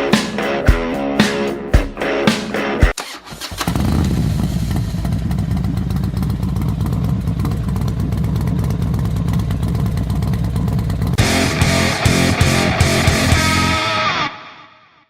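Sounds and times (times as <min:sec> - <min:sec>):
motorcycle engine running at low revs: 0:03.6 - 0:13.3.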